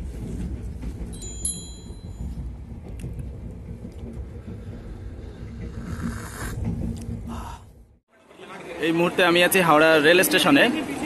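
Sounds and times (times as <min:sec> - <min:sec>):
train rumbling inside coach: 0:00.0 - 0:08.0.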